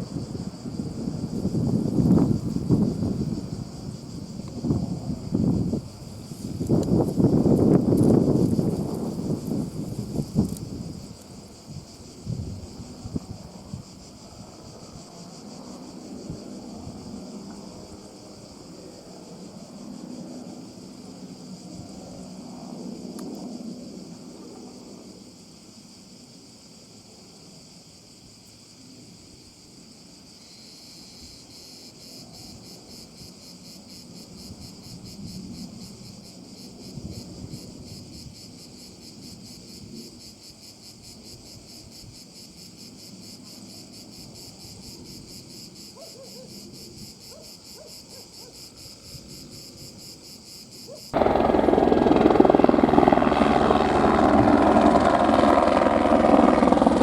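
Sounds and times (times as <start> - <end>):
helicopter rotor and turbine: 0.0 - 25.2, 51.1 - 57.0
insects chirring: 0.0 - 57.0.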